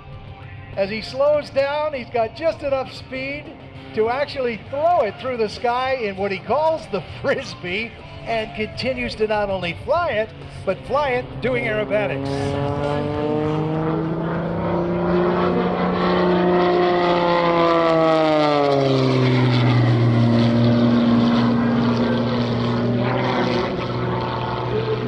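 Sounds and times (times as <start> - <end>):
propeller airplane engine: 0.0 - 25.0.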